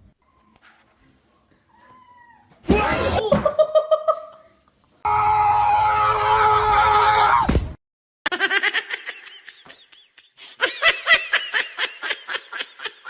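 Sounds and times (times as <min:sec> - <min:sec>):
high-pitched laughter: 0:08.3 - 0:13.0.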